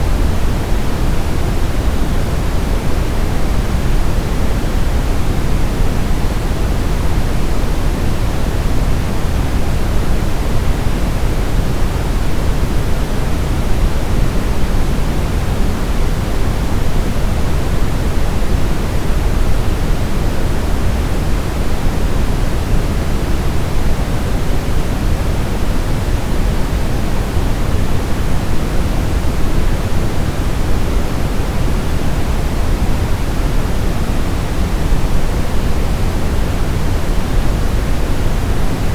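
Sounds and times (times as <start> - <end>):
steady white noise: 0.0 - 38.9.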